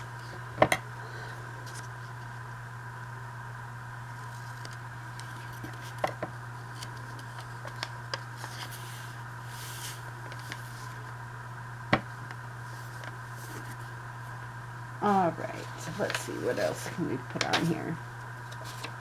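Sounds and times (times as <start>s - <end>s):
low electrical hum: 0.0s - 19.0s
paper rustling: 6.7s - 11.0s, 12.7s - 13.9s, 15.1s - 19.0s.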